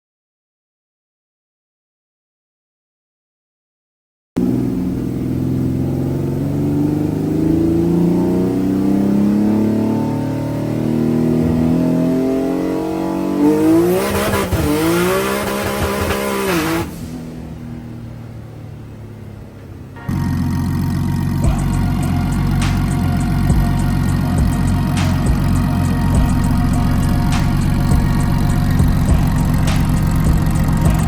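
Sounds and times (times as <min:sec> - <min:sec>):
car engine revving: 0:04.4 - 0:31.0.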